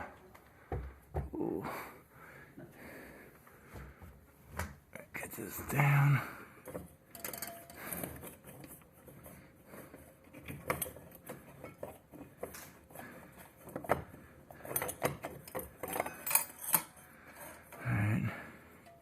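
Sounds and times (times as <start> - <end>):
tools and hard parts clicking: 6.6 - 17.8.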